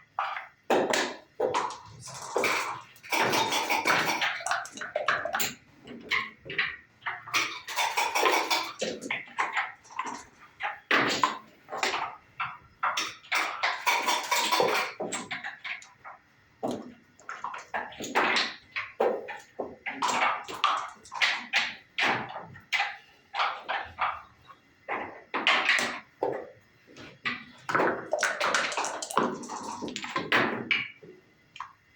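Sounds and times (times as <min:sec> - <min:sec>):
checkers clacking on board: 0:01.6 - 0:16.0.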